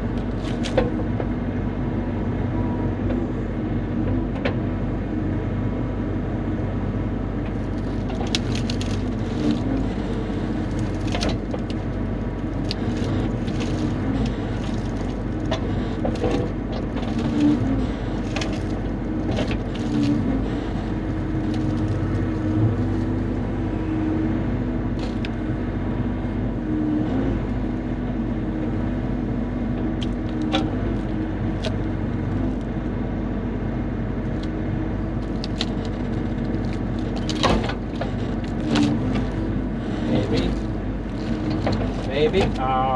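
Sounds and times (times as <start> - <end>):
excavator diesel engine running: 0.0 - 42.9
sharp clicks and knocks: 10.6 - 20.3, 40.1 - 42.6.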